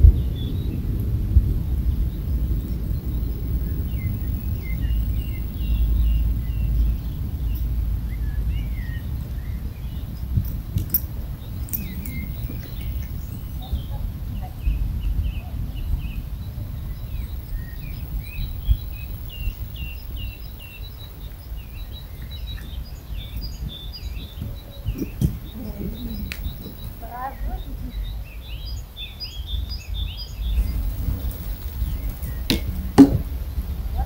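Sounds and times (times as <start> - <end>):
steady low rumble: 0.0 - 28.2, 30.3 - 34.0
small birds chirping: 0.0 - 34.0
soft thumps: 24.9 - 27.0, 30.6 - 33.4.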